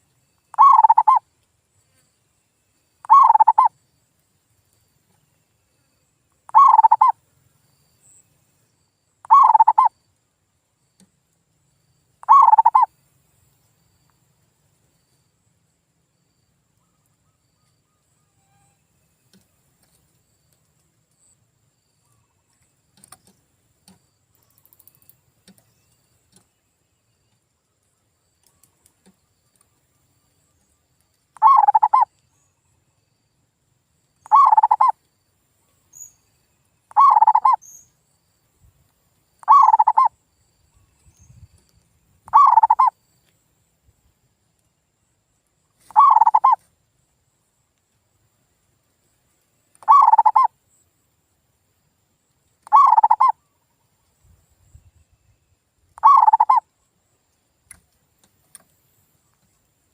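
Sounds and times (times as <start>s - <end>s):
dove cooing: 0.5s - 1.2s, 3.0s - 3.7s, 6.5s - 7.1s, 9.2s - 9.9s, 12.2s - 12.9s, 31.4s - 32.0s, 34.3s - 34.9s, 37.0s - 37.6s, 39.4s - 40.1s, 42.3s - 42.9s, 45.9s - 46.6s, 49.8s - 50.5s, 52.6s - 53.3s, 56.0s - 56.6s.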